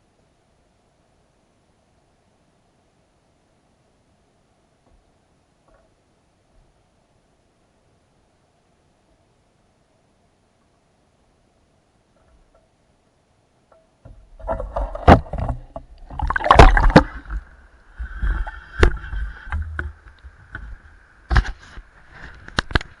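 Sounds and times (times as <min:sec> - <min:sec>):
knocks and thumps: 0:13.7 - 0:21.8
water sloshing and rumbling: 0:14.0 - 0:23.0.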